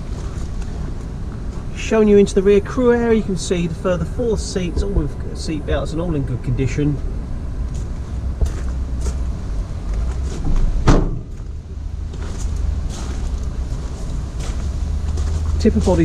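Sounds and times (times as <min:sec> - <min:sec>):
steady low rumble: 0:00.0 - 0:16.0
van door thump: 0:10.5 - 0:11.4.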